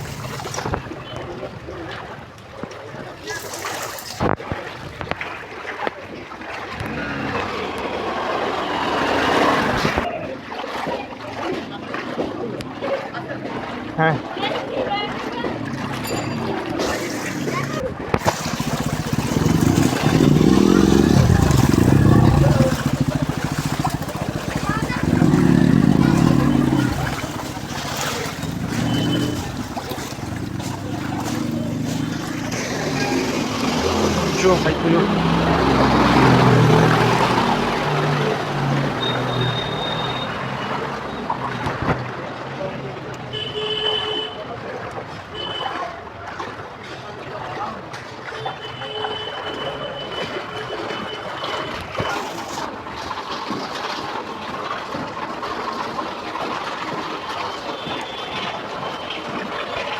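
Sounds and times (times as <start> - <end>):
vehicle engine running: 0.0 - 0.6, 17.3 - 41.0
rushing splashing water: 0.0 - 59.9.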